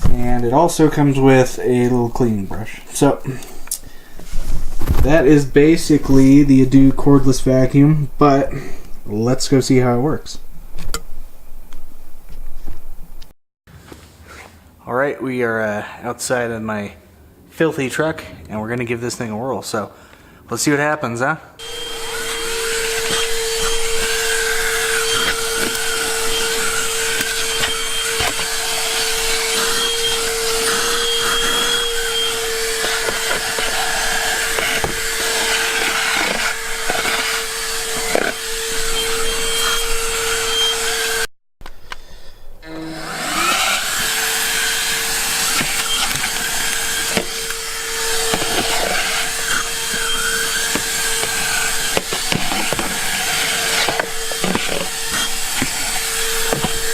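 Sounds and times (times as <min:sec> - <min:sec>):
handheld vacuum running: 0:21.6 - 0:41.3, 0:42.6 - 0:56.9
vacuum knocking on floor: 0:53.8 - 0:56.9.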